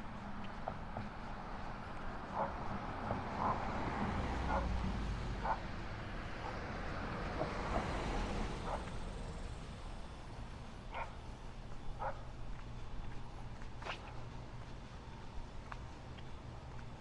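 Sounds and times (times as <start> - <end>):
low neighbourhood rumble: 0.0 - 17.0
dog barking: 2.3 - 2.6, 4.5 - 4.8, 5.4 - 5.6, 8.6 - 8.9, 10.9 - 11.2, 12.0 - 12.3.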